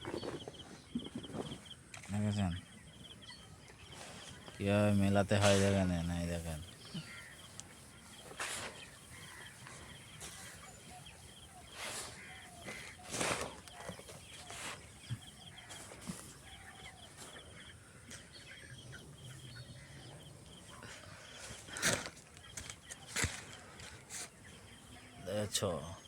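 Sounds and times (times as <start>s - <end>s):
chickens peeping and clucking: 2.6s - 25.5s
rustling bursts: 11.7s - 15.0s.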